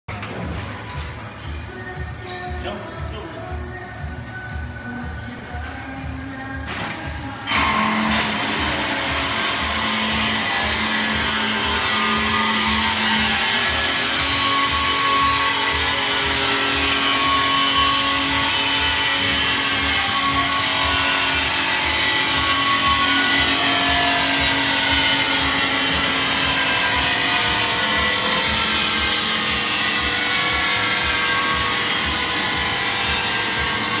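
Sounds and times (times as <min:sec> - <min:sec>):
rust cleaning machine scrubbing: 0:07.5 - 0:34.0.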